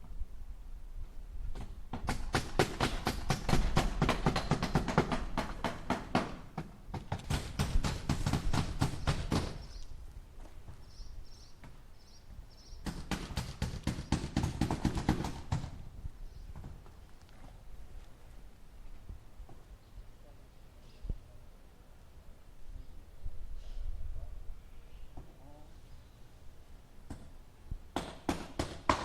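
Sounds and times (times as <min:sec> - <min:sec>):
hammer driving nails: 0:01.6 - 0:09.6, 0:12.8 - 0:15.8, 0:28.0 - 0:29.0.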